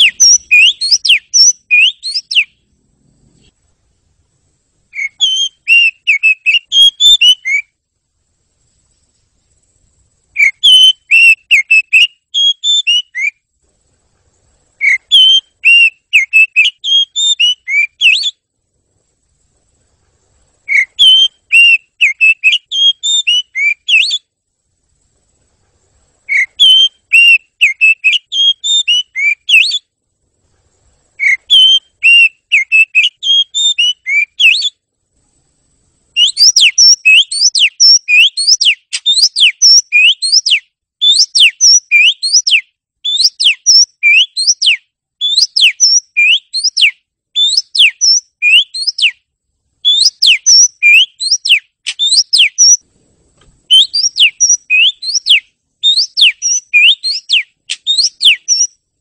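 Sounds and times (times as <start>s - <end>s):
bird singing whistled phrases: 0.0s - 2.6s, 4.9s - 7.8s, 10.3s - 13.4s, 14.8s - 18.4s, 20.6s - 24.3s, 26.3s - 29.9s, 31.2s - 34.8s, 36.2s - 49.2s, 49.8s - 52.8s, 53.7s - 58.8s.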